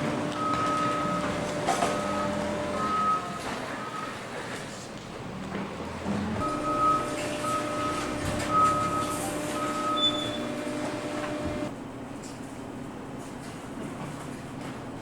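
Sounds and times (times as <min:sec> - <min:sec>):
machine humming: 0:00.0 - 0:03.1, 0:06.4 - 0:11.7
electronic warning beeper: 0:06.4 - 0:11.6.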